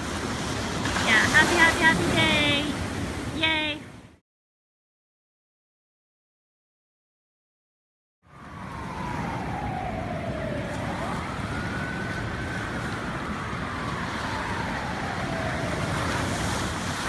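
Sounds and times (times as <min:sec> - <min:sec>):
surf rushing: 0:00.0 - 0:03.8, 0:08.5 - 0:17.0
siren wailing: 0:08.2 - 0:17.0
wind noise: 0:08.3 - 0:17.0.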